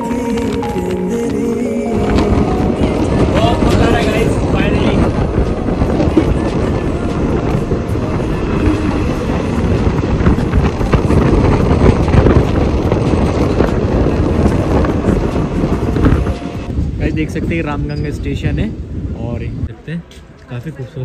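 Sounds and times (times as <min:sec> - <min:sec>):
wind buffeting microphone: 0:00.0 - 0:20.4
train wheels clattering on rails: 0:02.0 - 0:18.2.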